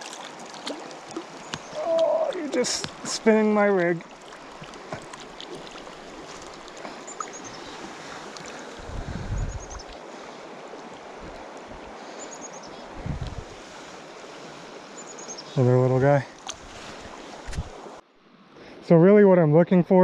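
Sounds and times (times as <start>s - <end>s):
river flowing: 0.0s - 18.5s
wind buffeting microphone: 8.7s - 10.0s, 11.1s - 12.0s, 12.9s - 13.6s, 16.6s - 18.0s.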